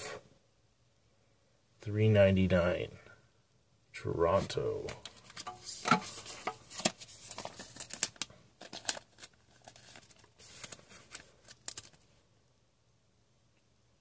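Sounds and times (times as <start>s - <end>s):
cards clicking and flipping: 4.8s - 12.0s
packaging rustling: 5.0s - 12.1s.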